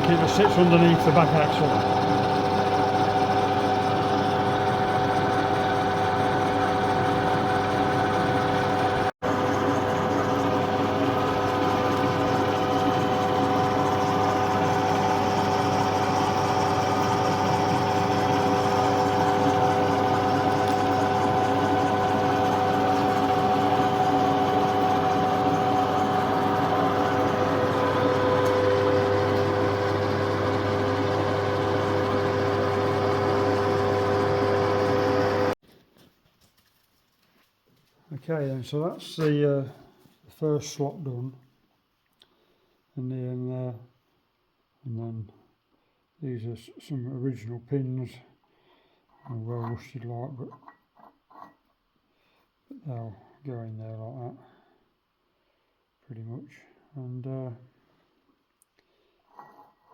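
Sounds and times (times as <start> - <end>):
milling machine whine: 0.0 - 35.6.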